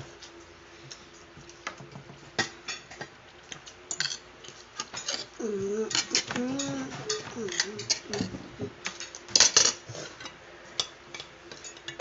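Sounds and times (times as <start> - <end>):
cutlery clicking on plates: 2.4 - 12.0
person speaking: 5.4 - 8.5.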